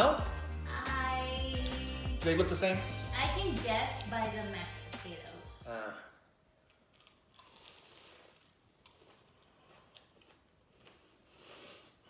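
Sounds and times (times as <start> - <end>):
man chewing crispy chicken: 6.7 - 12.0.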